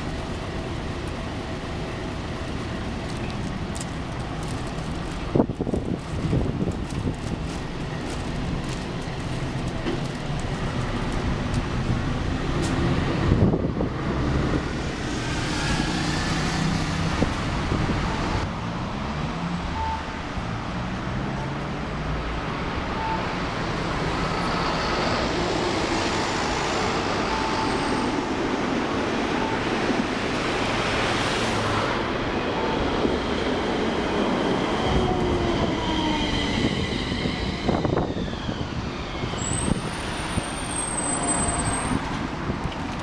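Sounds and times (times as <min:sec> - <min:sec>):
streetcar wheels rumbling: 0:00.0 - 0:43.0
high thin wheel squeal: 0:26.1 - 0:28.3, 0:35.8 - 0:42.1.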